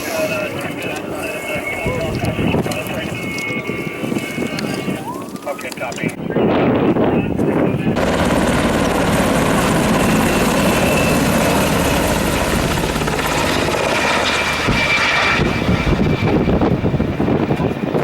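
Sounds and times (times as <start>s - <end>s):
aircraft engines overhead: 0.0s - 18.0s.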